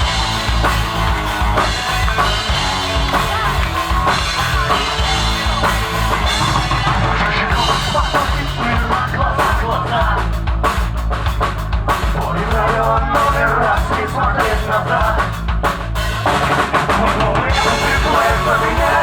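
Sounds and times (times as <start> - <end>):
drum kit kick and cymbals: 0.0 - 19.0
rock band playing: 0.0 - 19.0.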